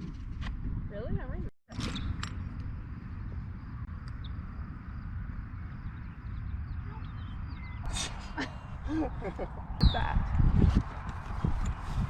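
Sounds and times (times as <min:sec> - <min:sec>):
wind rumbling on microphone: 0:00.0 - 0:12.0
faint bird chirps: 0:05.6 - 0:07.9.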